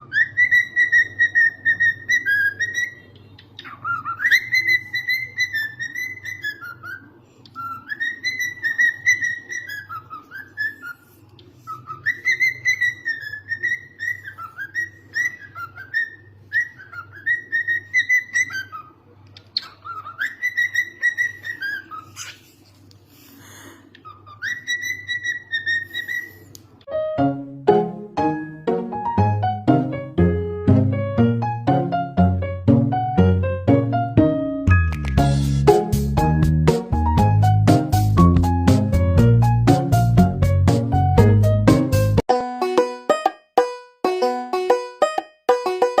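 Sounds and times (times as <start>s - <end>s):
cockatiel whistling: 0.0s - 19.0s, 19.6s - 22.5s, 24.0s - 26.6s.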